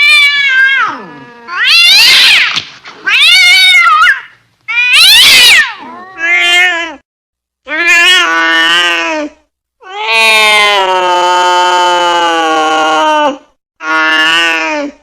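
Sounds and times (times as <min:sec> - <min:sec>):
angry cat yowling: 0:00.0 - 0:07.0.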